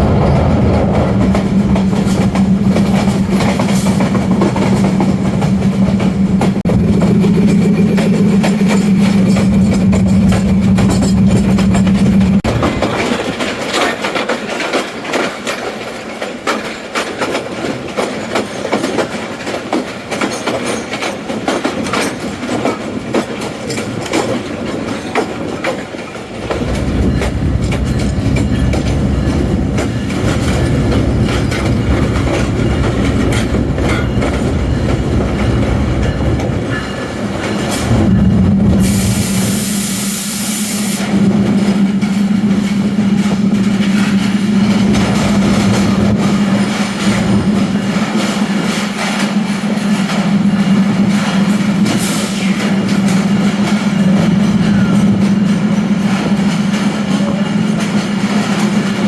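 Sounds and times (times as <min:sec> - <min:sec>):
train wheels clicking over rail joints: 0:00.0 - 0:59.0
low rumble: 0:06.6 - 0:12.7, 0:26.4 - 0:36.1, 0:37.8 - 0:39.5.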